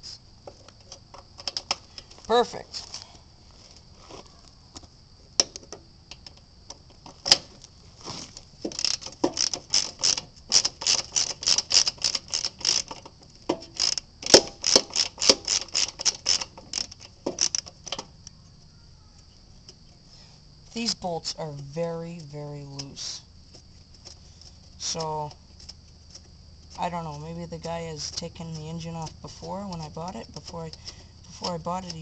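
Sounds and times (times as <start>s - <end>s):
socket ratchet clicking: 8.7s - 18.0s.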